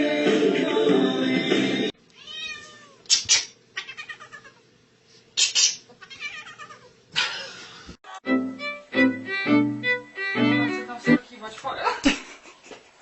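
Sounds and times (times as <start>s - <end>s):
music: 0.0s - 1.9s, 8.1s - 11.2s
cat meowing: 2.2s - 3.1s, 3.8s - 4.6s, 6.0s - 7.0s.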